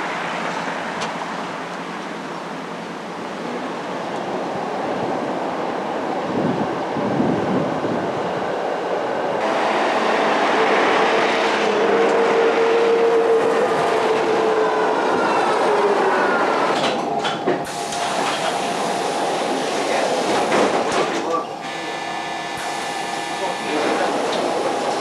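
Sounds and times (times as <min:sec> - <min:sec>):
rail vehicle rolling: 0:00.0 - 0:25.0
rail vehicle whine: 0:00.0 - 0:25.0.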